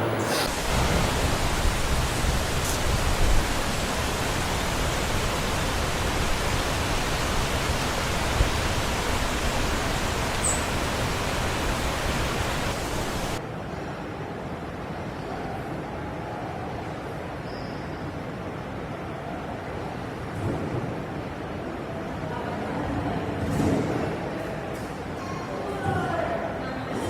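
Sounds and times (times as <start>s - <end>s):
steady rushing noise: 0.0s - 13.7s.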